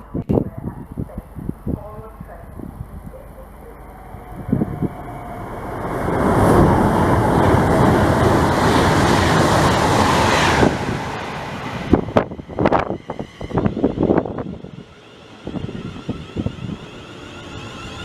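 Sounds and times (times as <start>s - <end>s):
wind thumps on microphone: 0.0s - 3.2s, 4.3s - 5.1s
train passing at speed: 0.0s - 18.0s.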